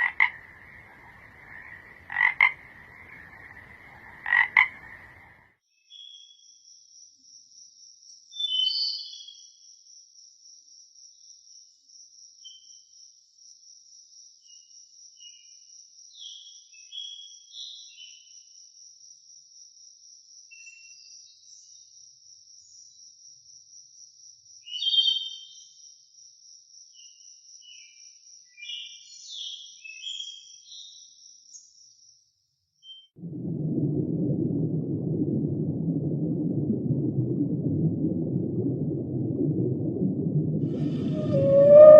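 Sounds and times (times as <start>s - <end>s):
bird chirps: 41.1s - 41.9s.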